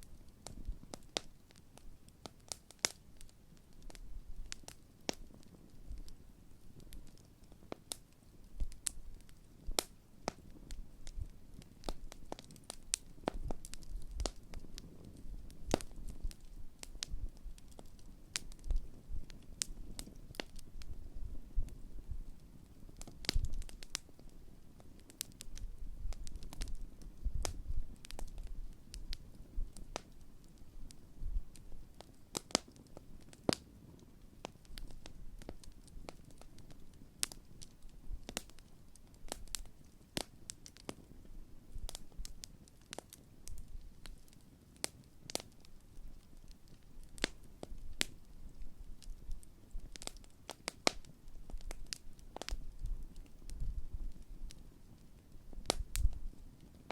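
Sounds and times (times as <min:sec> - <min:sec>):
campfire pops and crackles: 0:00.0 - 0:56.9
low rumble of flames: 0:00.0 - 0:56.9.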